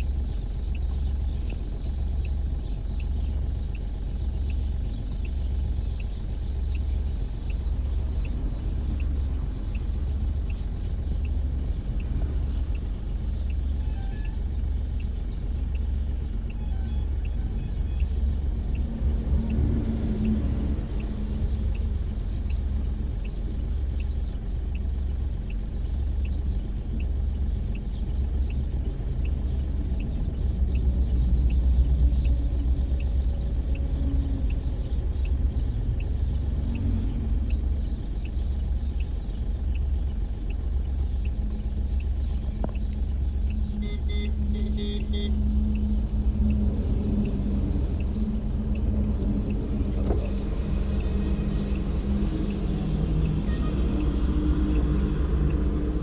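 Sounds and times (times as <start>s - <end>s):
highway traffic rumble: 0.0s - 56.0s
brief tone: 43.8s - 45.4s, 53.3s - 55.1s
faint high ticking: 47.3s - 56.0s.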